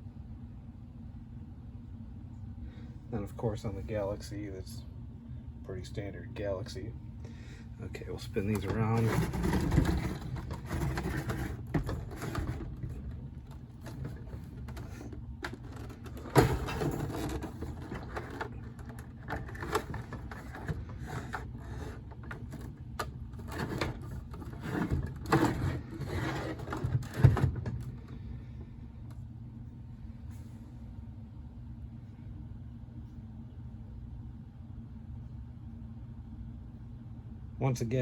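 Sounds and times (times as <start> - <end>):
fans scraping and clunking on table: 7.8 - 28.7.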